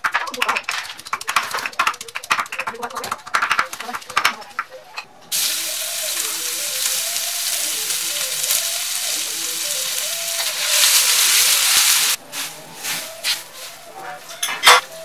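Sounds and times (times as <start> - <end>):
spice paste sizzling in a wok: 5.3 - 14.1.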